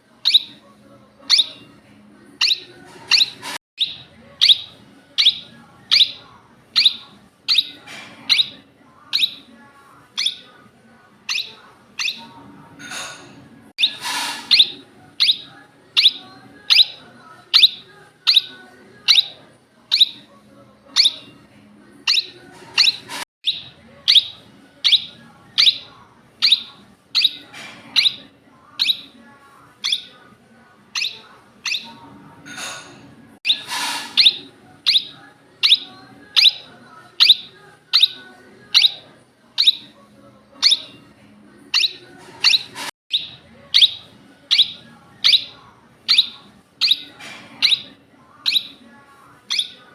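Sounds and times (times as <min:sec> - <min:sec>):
parrot calling: 0:02.4 - 0:06.2, 0:06.8 - 0:09.5, 0:10.2 - 0:10.5, 0:11.3 - 0:20.2, 0:20.9 - 0:21.3, 0:22.1 - 0:29.2, 0:29.8 - 0:30.1, 0:30.9 - 0:39.0, 0:39.6 - 0:39.9, 0:40.6 - 0:41.0, 0:41.7 - 0:48.8, 0:49.5 - 0:49.8
parrot screeches: 0:13.8 - 0:17.0, 0:32.6 - 0:36.7.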